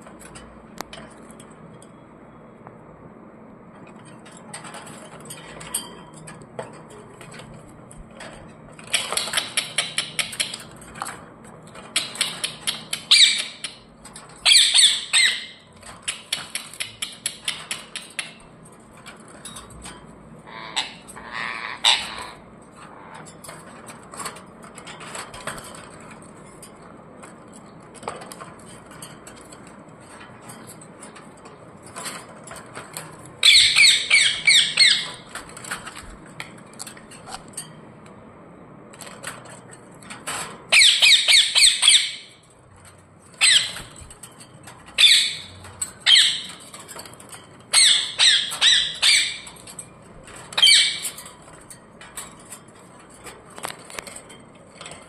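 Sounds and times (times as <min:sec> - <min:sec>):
parrots squawking: 0:12.0 - 0:13.8, 0:14.4 - 0:15.7, 0:20.4 - 0:23.2, 0:33.4 - 0:35.3, 0:40.7 - 0:42.4, 0:43.4 - 0:44.0, 0:45.0 - 0:46.6, 0:47.7 - 0:49.7, 0:50.5 - 0:51.2.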